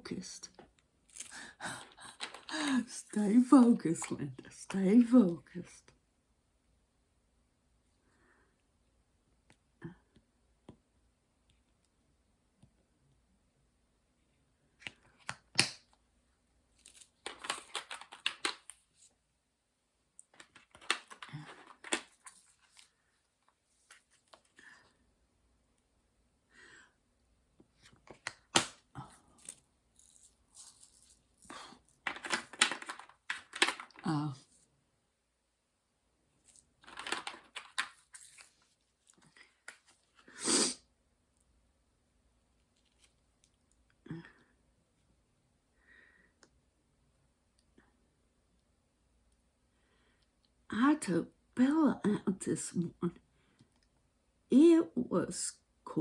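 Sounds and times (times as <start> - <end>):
plastic crinkling and rustling: 29.3 - 34.0.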